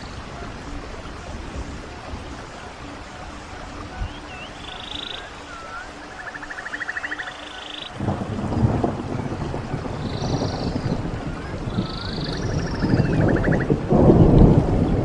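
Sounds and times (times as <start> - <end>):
songbirds calling: 0.0 - 14.4
running water: 0.0 - 15.0
low rushing rumble: 8.0 - 15.0.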